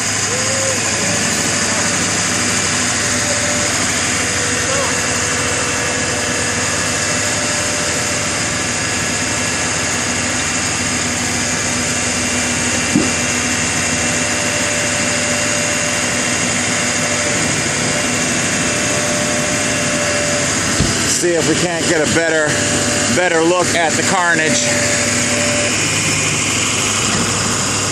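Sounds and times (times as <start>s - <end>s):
engine humming steadily: 0.0s - 27.9s.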